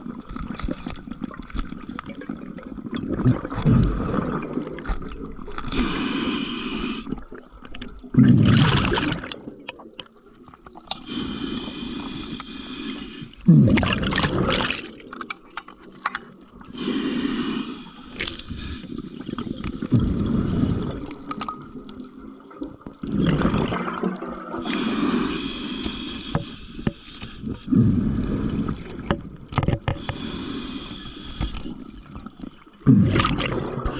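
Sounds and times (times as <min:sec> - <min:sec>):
water sloshing and gurgling: 0:00.0 - 0:33.9
small clicks and knocks: 0:29.1 - 0:30.2.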